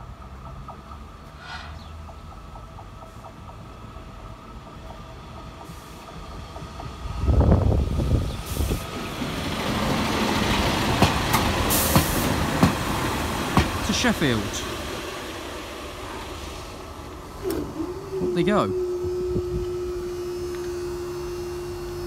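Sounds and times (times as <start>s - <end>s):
wheels clicking over rail joints: 0.0s - 1.4s
diesel train passing: 0.0s - 22.0s.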